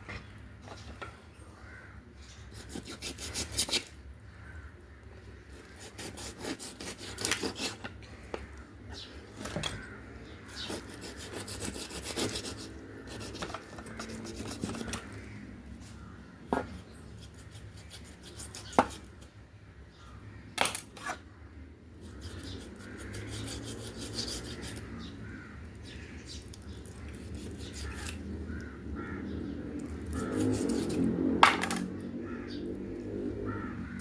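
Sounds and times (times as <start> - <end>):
rubbing and scraping: 2.4 - 4.0, 5.5 - 8.0, 9.3 - 15.2, 15.8 - 19.2, 22.0 - 25.1, 26.7 - 28.3, 30.0 - 31.9.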